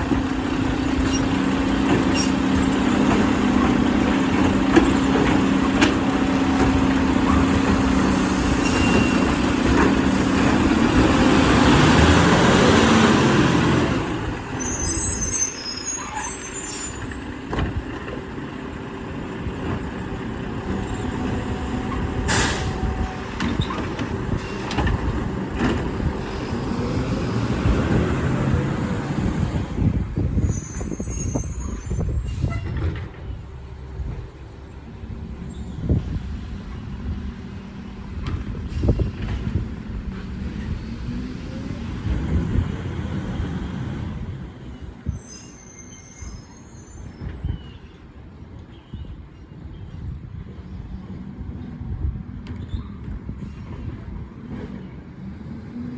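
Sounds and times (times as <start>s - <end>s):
truck diesel engine droning: 0.0s - 15.2s
sharp hisses or clunks: 22.3s - 22.8s.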